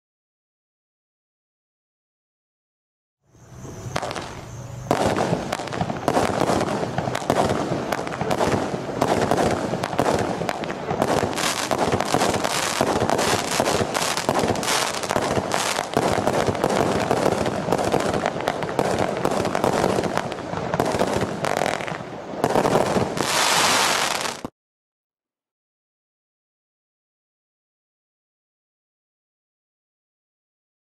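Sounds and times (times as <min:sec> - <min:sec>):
firework crackling: 0:03.8 - 0:24.5
firework bangs: 0:03.9 - 0:24.5
firework tubes launching: 0:03.9 - 0:24.5.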